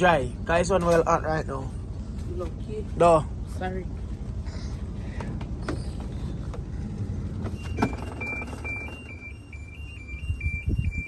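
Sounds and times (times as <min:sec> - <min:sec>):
washing machine two-tone beeping: 0:07.4 - 0:11.0.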